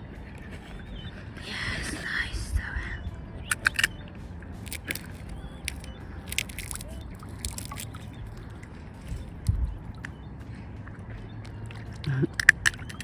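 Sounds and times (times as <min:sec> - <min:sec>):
swan bill clicks and snaps: 0:03.5 - 0:10.2, 0:11.1 - 0:13.0
water drips and sloshes: 0:04.7 - 0:13.0.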